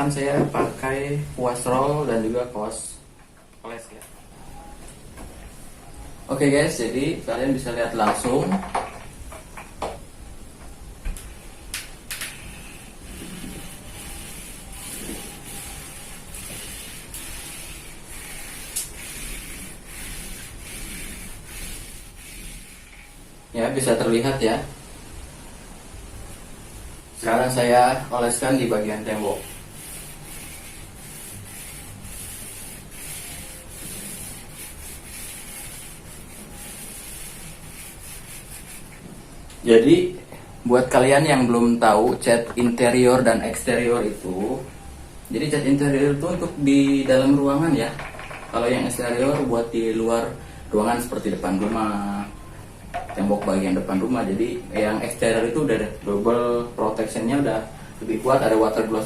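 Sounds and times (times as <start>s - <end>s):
soft hiss of paint strokes: 9.0s - 56.0s, 56.7s - 59.0s
paintbrush swishing on wall: 12.3s - 23.8s, 27.2s - 39.3s.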